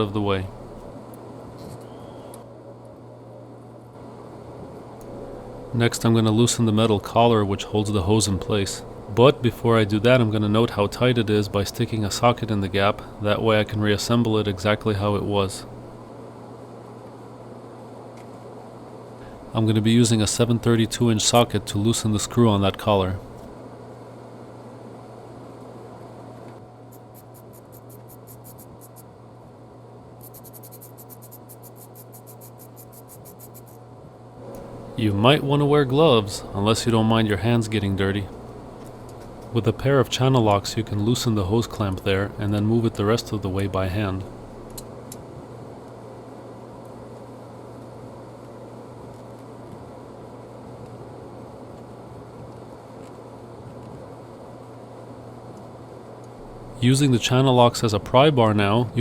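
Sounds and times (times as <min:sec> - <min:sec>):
steady low hum: 0:00.0 - 0:59.0
ratchet clicking: 0:26.9 - 0:29.0, 0:30.2 - 0:33.8.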